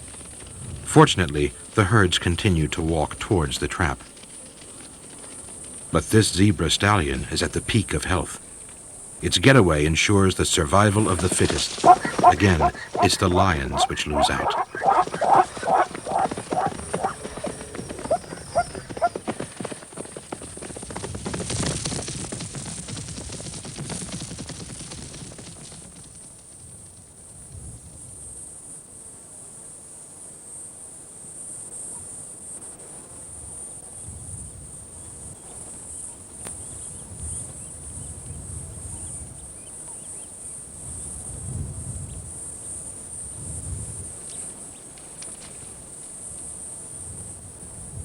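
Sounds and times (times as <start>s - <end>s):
low dull thuds: 11.0s - 19.2s.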